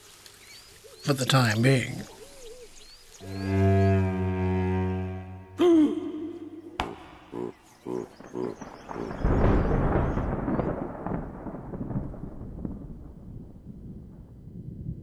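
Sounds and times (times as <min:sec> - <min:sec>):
thunder rumbling: 0:06.8 - 0:15.0.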